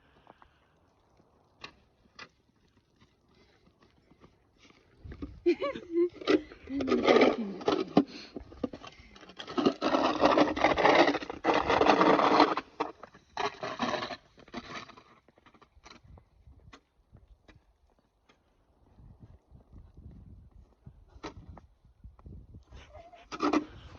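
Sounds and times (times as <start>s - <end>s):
snow shovel scraping snow: 9.3s - 15.1s.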